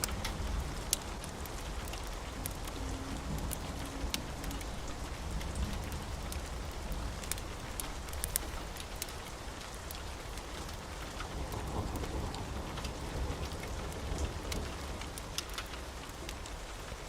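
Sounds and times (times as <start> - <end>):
wood fire crackling: 0.0 - 11.5.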